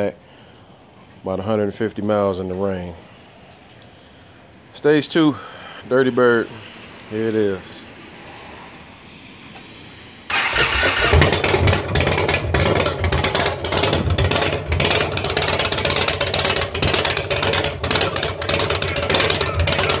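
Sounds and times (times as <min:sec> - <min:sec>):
motorcycle engine starting and idling: 0:10.3 - 0:20.0.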